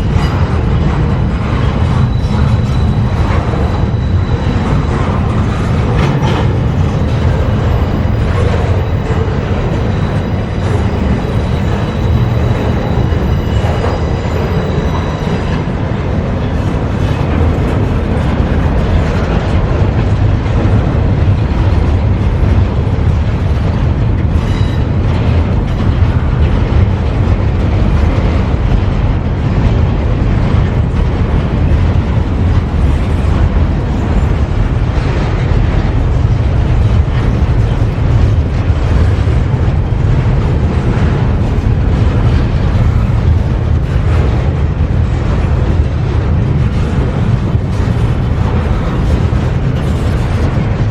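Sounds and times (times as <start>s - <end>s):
train wheels rumbling on rails: 0.0s - 50.9s
faint high wheel squeal: 1.6s - 15.9s, 24.4s - 24.9s.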